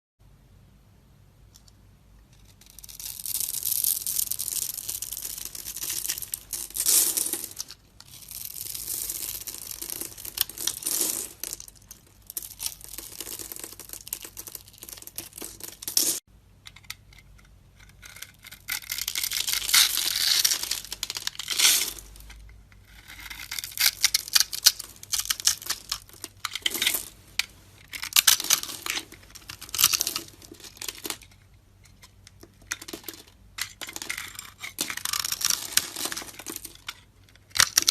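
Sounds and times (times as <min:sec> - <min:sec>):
blade scraping soap: 0:21.6 - 0:24.5.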